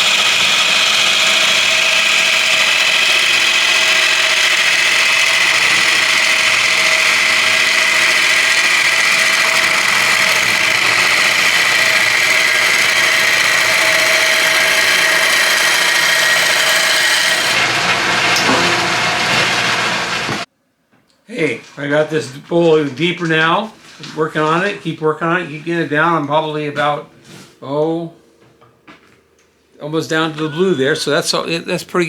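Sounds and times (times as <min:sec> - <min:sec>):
gouge cutting wood hiss: 0:00.0 - 0:17.6
wood lathe humming: 0:00.0 - 0:20.5.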